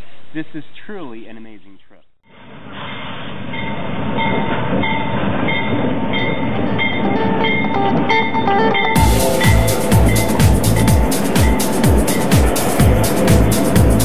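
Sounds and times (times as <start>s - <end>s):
diesel train rumbling: 9.0s - 14.0s.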